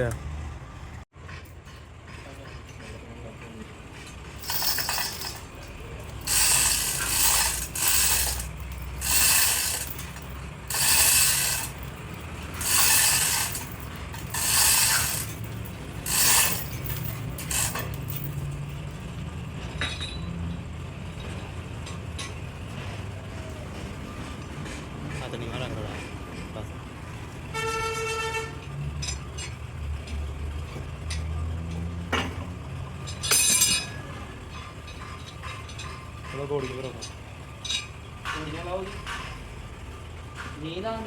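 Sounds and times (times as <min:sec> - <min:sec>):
metal ratchet rasping strokes: 0:04.0 - 0:18.7.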